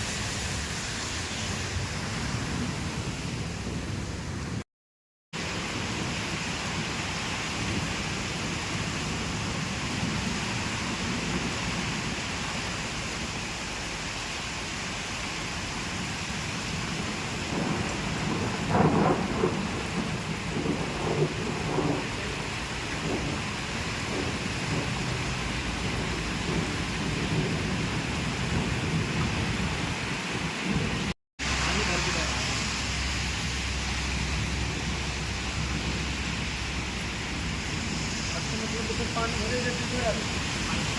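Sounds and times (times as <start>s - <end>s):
steady rain: 0.0s - 4.6s, 5.4s - 40.9s
thunder: 16.8s - 32.3s.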